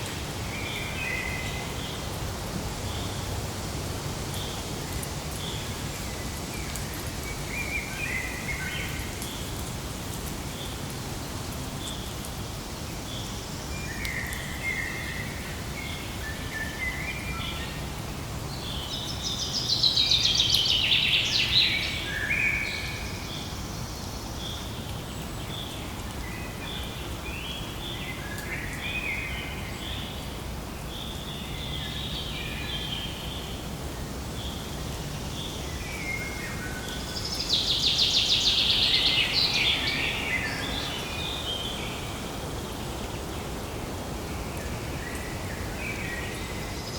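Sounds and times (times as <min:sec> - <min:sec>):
small birds chirping: 0:34.3 - 0:46.9.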